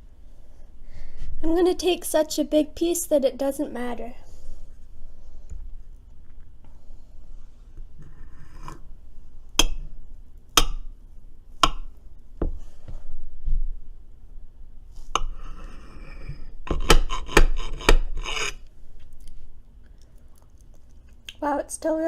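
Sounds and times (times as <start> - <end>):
utensil scraping baking pan: 15.2 - 18.6.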